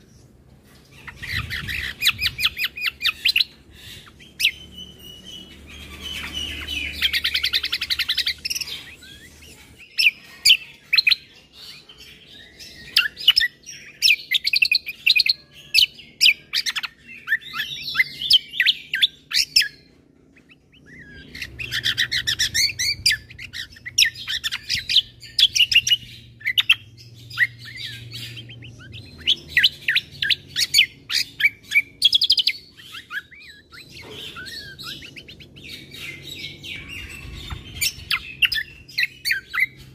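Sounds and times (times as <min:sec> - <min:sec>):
songbird chirps and trills: 0:00.0 - 0:39.9.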